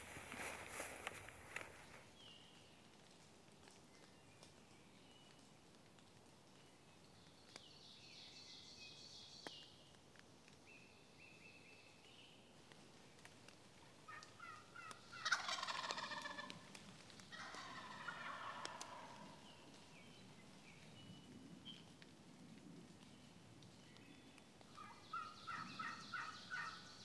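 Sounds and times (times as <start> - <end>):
turkey gobbling: 14.1 - 16.6, 17.3 - 19.4, 24.8 - 26.8
small birds chirping: 23.0 - 27.0.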